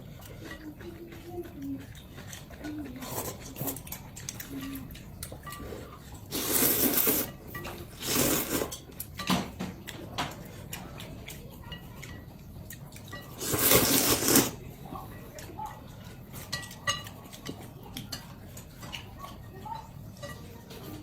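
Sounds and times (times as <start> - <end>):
chopsticks clicking against bowl: 0.2 - 14.5, 15.4 - 20.5
loud noodle slurps: 6.3 - 7.3, 8.0 - 8.7, 13.4 - 14.6.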